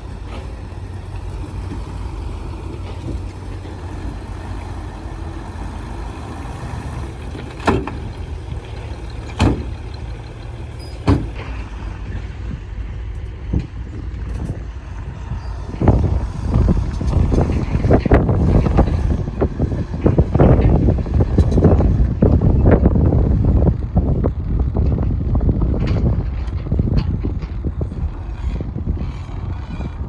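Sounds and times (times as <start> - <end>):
diesel engine rumbling: 0.0 - 30.0.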